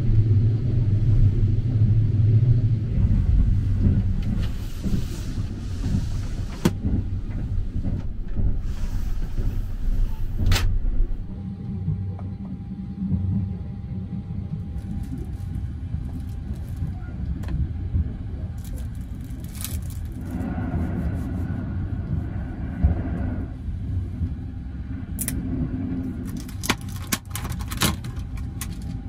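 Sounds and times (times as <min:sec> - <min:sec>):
train carriage rumbling: 0:00.0 - 0:29.0.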